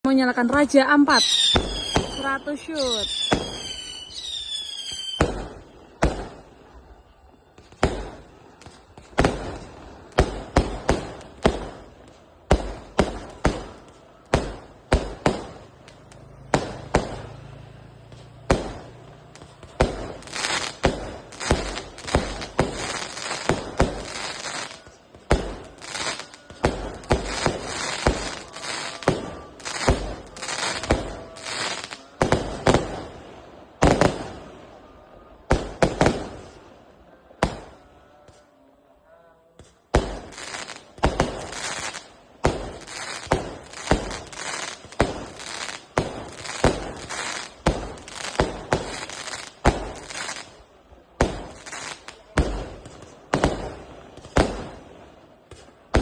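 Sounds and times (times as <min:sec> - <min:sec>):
falling firework whistle: 0:01.1 - 0:09.4
firework bangs and thumps: 0:01.5 - 0:17.4, 0:18.1 - 0:34.4, 0:39.6 - 0:56.0.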